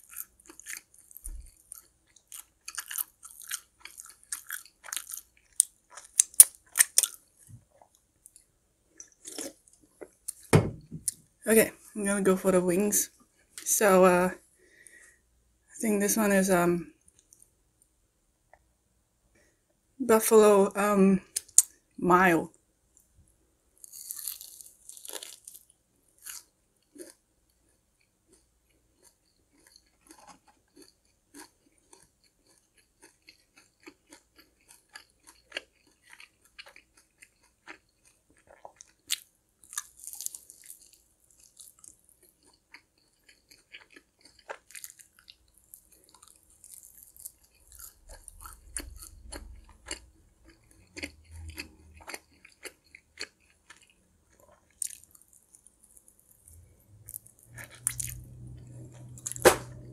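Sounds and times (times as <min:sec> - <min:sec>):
wet chewing: 0:00.0 - 0:08.4, 0:28.3 - 0:59.6
loud bites: 0:59.2 - 0:59.9.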